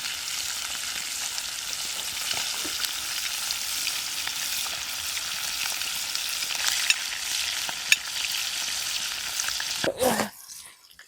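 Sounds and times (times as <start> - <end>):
fish sizzling over a fire: 0.0 - 9.9.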